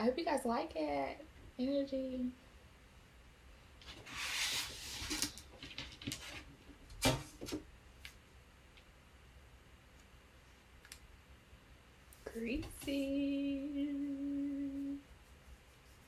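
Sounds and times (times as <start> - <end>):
rustling rub: 3.9 - 5.4, 15.0 - 16.0.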